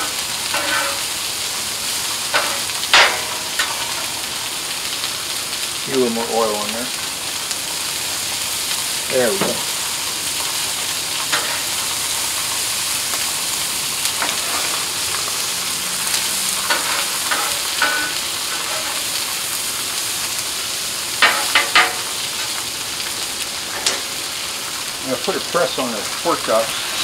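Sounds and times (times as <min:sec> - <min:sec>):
metal spatula scraping griddle: 0:00.0 - 0:01.2, 0:02.3 - 0:04.3, 0:11.3 - 0:12.0, 0:14.2 - 0:15.4, 0:16.2 - 0:19.3, 0:21.2 - 0:22.6
meat frying on a griddle: 0:00.0 - 0:27.0.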